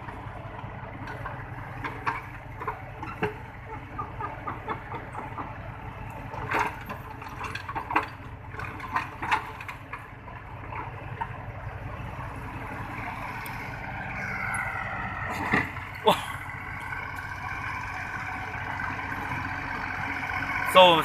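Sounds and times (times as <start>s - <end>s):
diesel engine idling: 0.0s - 21.0s
metallic clanks and knocks: 1.0s - 5.7s, 6.4s - 10.1s.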